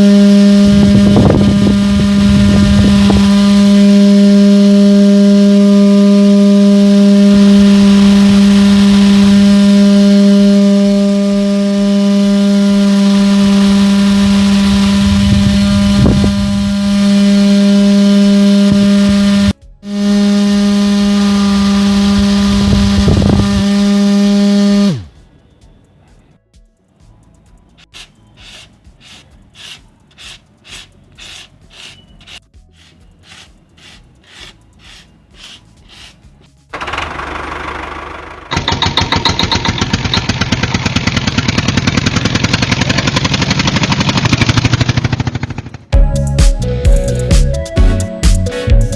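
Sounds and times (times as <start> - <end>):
electric motor humming: 0.0 - 25.1, 29.6 - 44.8
low rumbling: 0.0 - 25.2
rhythmic scraping strokes: 0.0 - 37.2, 38.4 - 45.2.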